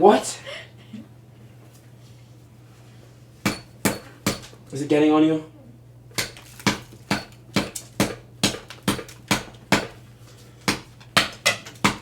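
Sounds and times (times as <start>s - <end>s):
hammer striking concrete: 3.5s - 4.5s, 6.2s - 10.0s, 10.7s - 12.0s.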